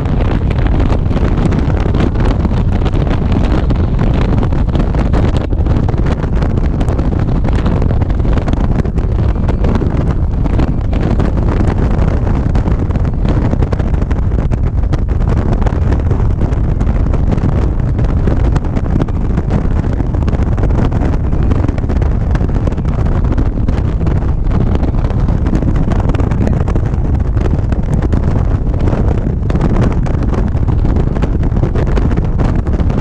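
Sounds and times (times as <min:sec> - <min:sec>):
motorcycle running: 0:00.0 - 0:33.0
road noise: 0:00.0 - 0:33.0
wind buffeting microphone: 0:00.0 - 0:33.0.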